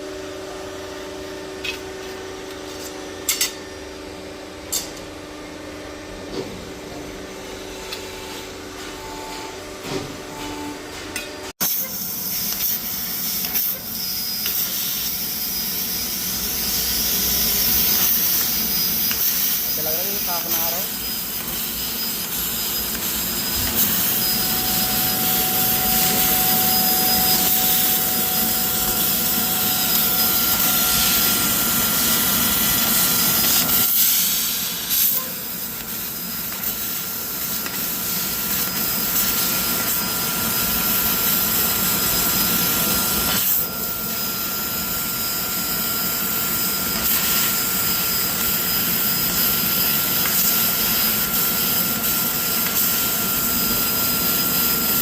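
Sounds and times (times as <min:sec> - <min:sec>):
laser cutting machine hissing: 0:11.6 - 0:55.0.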